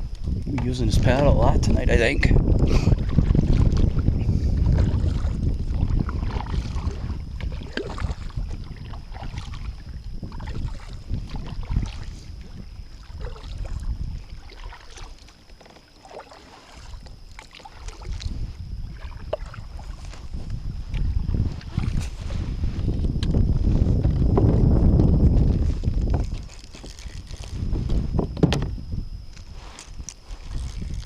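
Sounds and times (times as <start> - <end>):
wind buffeting microphone: 0.0 - 15.3, 16.8 - 31.0
paddle knocks and splashes: 2.9 - 4.0, 4.6 - 12.1, 13.0 - 20.3, 28.3 - 28.7.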